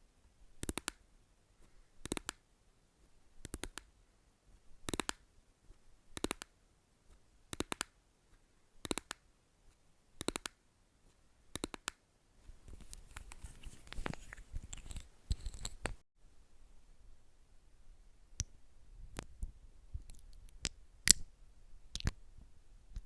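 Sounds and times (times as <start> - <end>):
scratching and rustling: 12.6 - 16.0.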